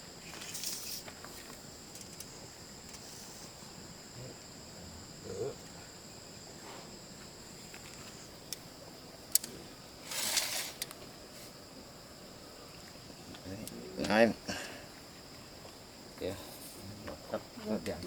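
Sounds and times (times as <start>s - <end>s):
insects chirring: 0.0s - 18.0s
rustle or scrape: 0.2s - 2.2s, 2.9s - 3.6s, 10.0s - 11.6s.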